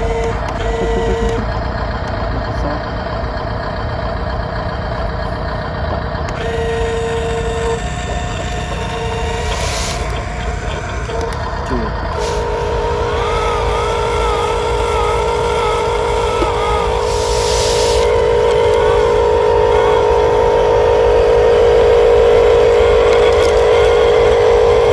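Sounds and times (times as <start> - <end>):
electric motors whining: 0.0 - 24.9
wavering motor tone: 0.0 - 24.9
short hiss: 9.3 - 10.1.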